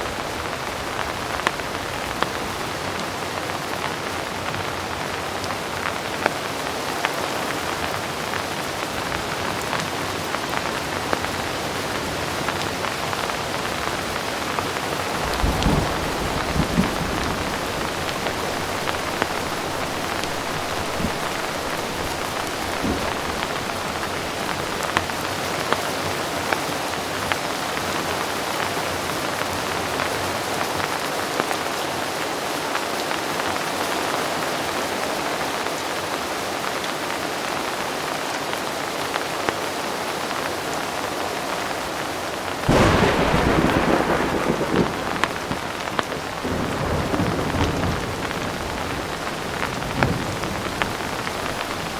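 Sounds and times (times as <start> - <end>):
heavy rain falling: 0.0 - 51.9
raindrop ticks: 10.5 - 25.9, 42.7 - 51.9
thunder clap and rumble: 13.4 - 25.5, 42.7 - 51.9.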